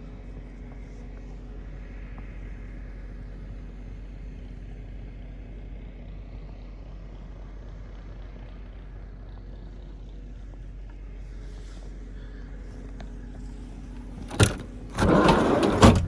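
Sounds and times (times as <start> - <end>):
excavator diesel engine: 14.0 - 16.0.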